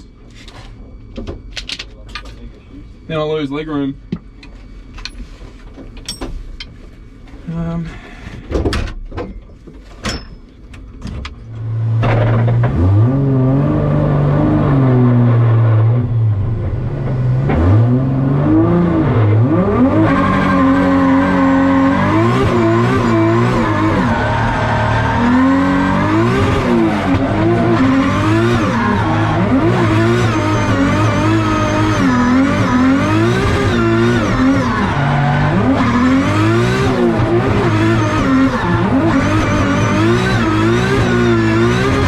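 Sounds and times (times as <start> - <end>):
car engine revving: 11.4 - 42.0.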